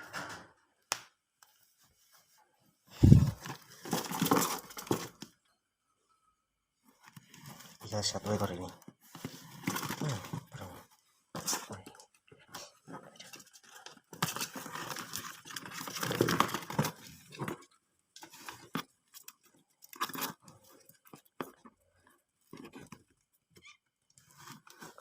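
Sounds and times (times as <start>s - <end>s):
cardboard box rustling: 3.0s - 5.3s, 9.1s - 10.5s, 12.9s - 21.7s.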